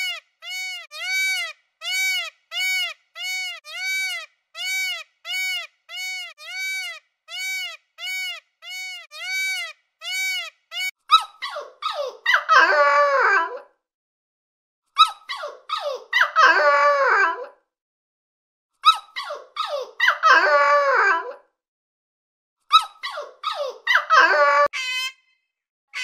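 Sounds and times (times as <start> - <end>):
peacock calling: 0.0 - 11.0
dogs crying high: 0.0 - 13.7, 15.0 - 17.6, 18.8 - 21.4, 22.7 - 24.7.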